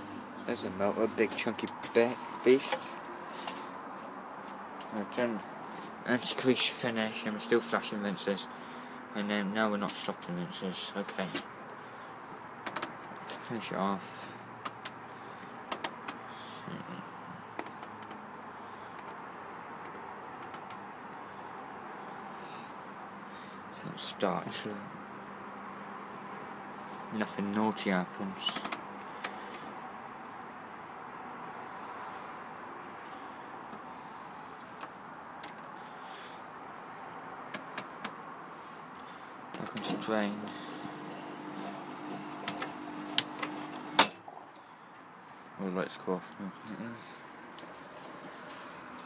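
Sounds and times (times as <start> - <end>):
sharp clicks: 12.6 - 13.2, 15.7 - 16.2, 19.8 - 20.8, 28.4 - 29.4, 42.4 - 44.2
washing machine running: 40.7 - 44.0.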